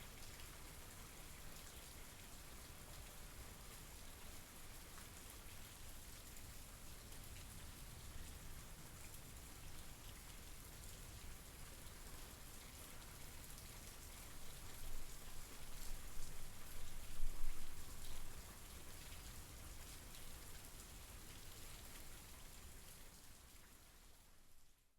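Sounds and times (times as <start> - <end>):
rain falling: 0.1 - 24.6.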